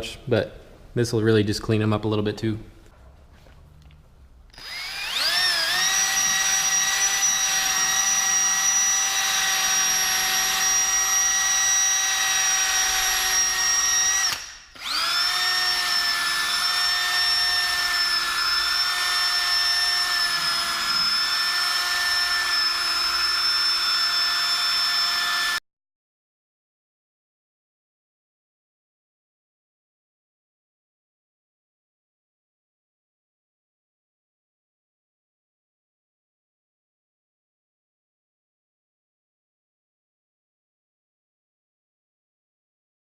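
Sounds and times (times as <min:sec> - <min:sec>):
power drill spinning polishing cone: 0:04.5 - 0:25.6.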